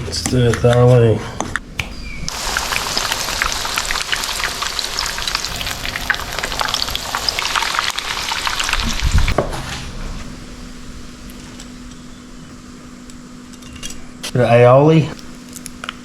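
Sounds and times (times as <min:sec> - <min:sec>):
fritters frying in hot oil: 0:02.3 - 0:09.6.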